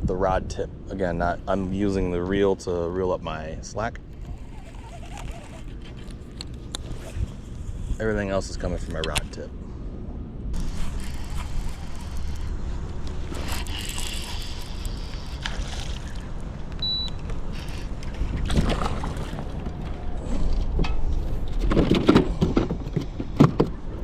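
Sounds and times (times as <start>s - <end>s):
water against a hull: 17.5s - 20.4s.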